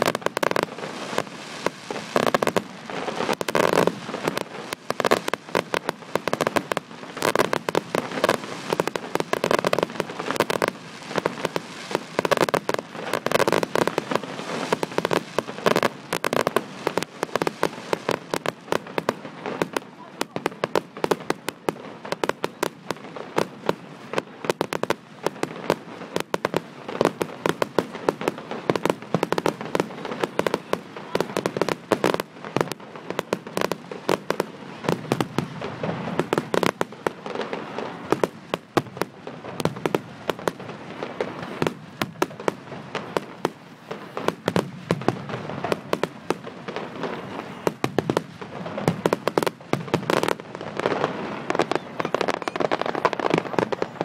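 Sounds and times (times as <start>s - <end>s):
fireworks crackle: 0.0s - 54.0s
fireworks cracks and bangs: 0.0s - 54.0s.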